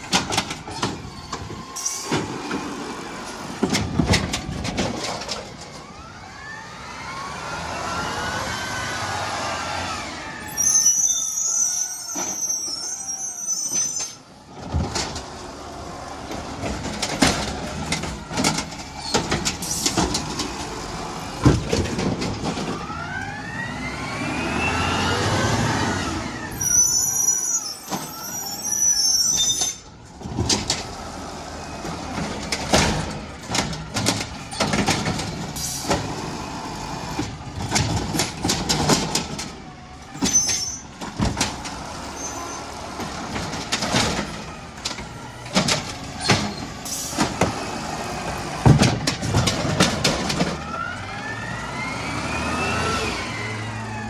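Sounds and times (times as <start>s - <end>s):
clanks and bangs: 0.0s - 2.7s, 3.5s - 5.9s, 16.3s - 23.0s, 31.8s - 36.4s, 37.0s - 42.0s, 42.9s - 50.8s
garbage truck engine revving: 0.0s - 10.8s, 14.4s - 28.8s, 29.9s - 54.0s.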